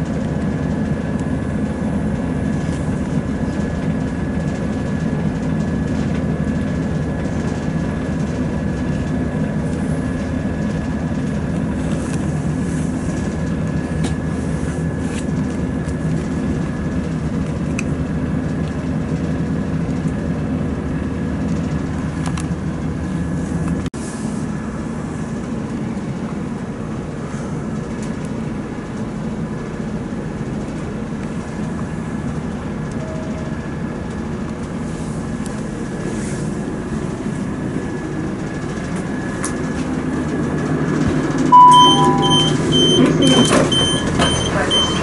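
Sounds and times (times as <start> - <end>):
train engine rumble: 0.0 - 45.0
electronic door beeps: 41.5 - 45.0.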